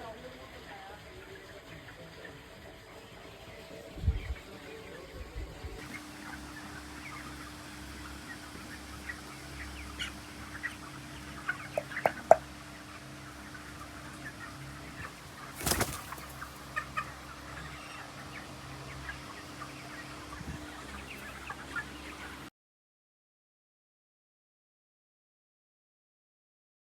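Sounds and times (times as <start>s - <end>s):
steady low hum: 0.0s - 22.5s
chickens chirping: 0.1s - 22.5s.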